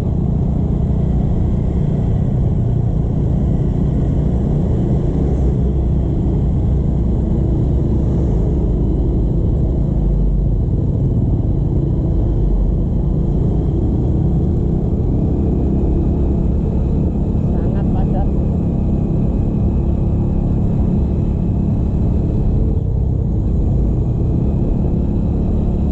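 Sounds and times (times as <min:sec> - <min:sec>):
motorcycle engine rumble: 0:00.0 - 0:25.9
road and wind noise: 0:00.0 - 0:25.9.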